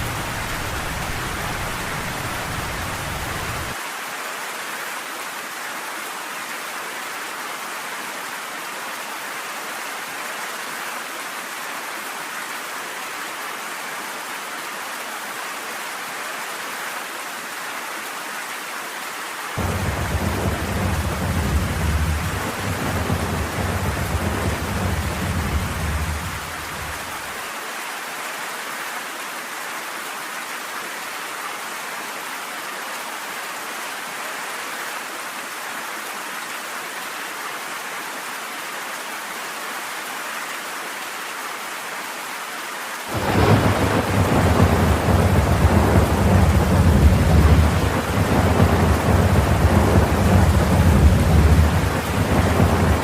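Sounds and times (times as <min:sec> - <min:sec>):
thunder rumbling: 0:00.0 - 0:03.8, 0:19.6 - 0:27.3, 0:43.1 - 0:53.0
steady rain falling: 0:00.0 - 0:53.0.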